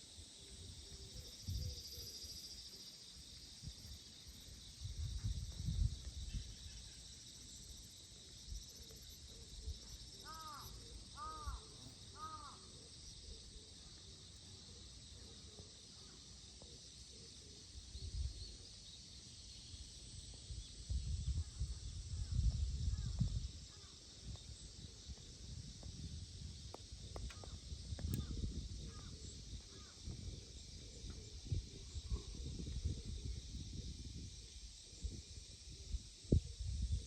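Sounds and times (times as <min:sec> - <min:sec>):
faint short bird calls: 0:10.2 - 0:12.9.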